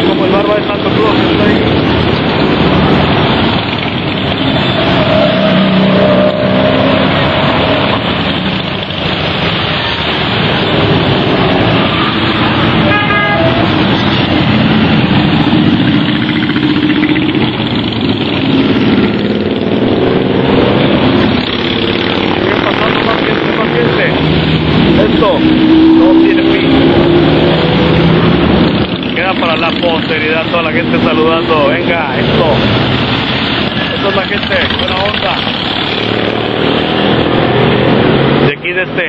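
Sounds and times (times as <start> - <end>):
motorcycles riding past: 13.5 - 39.0.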